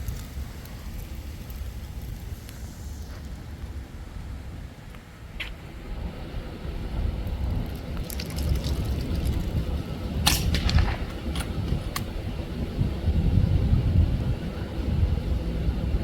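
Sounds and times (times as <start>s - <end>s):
low rumble: 5.8s - 14.4s
air rifle shot: 10.3s - 12.1s.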